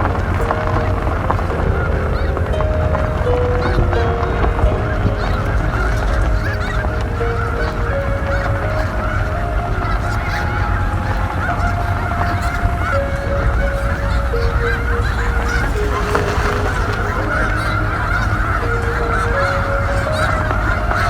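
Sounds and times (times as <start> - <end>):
flock of geese honking: 0.0 - 21.0
wind rumble on microphone: 0.0 - 21.0.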